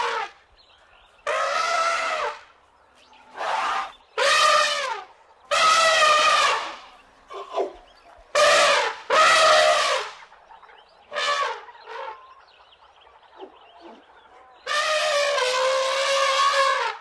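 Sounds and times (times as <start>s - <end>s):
elephants trumpeting: 1.2s - 2.5s, 3.3s - 10.2s, 11.1s - 12.3s, 14.6s - 17.0s.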